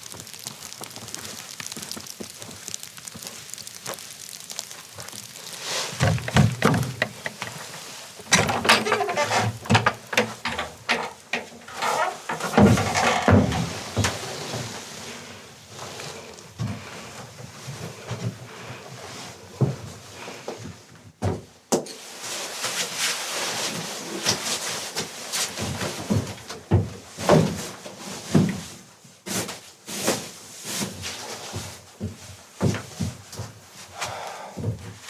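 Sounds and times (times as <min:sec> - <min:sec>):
steady hiss: 0:00.0 - 0:19.4
objects knocking and thumping: 0:05.9 - 0:14.7.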